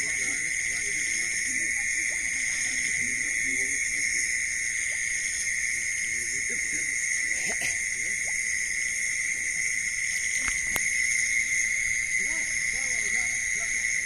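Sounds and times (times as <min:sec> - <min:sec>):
faint distant voices: 0:00.0 - 0:04.9
crickets shrilling: 0:00.0 - 0:14.0.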